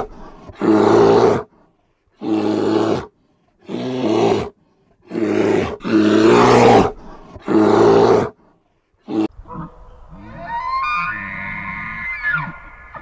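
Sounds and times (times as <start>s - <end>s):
animal rough cries: 5.1s - 8.3s, 9.1s - 13.0s.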